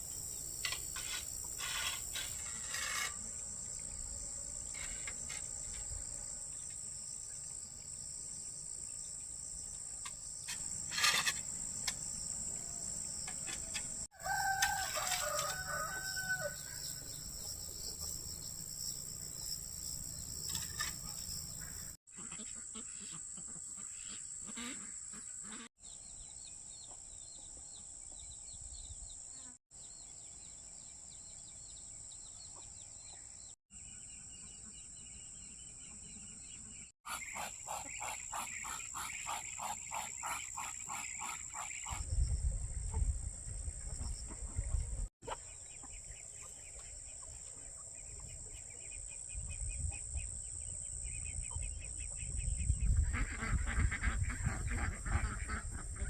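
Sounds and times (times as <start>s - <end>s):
insects droning: 0.0s - 22.0s
rooster crowing: 14.1s - 17.1s.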